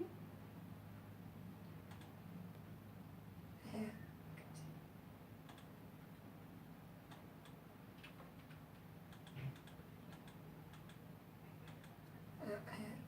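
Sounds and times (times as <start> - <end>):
low steady hum: 0.0 - 13.0
computer controls clicking: 1.8 - 2.2, 5.4 - 5.8, 7.1 - 11.0, 11.6 - 12.2.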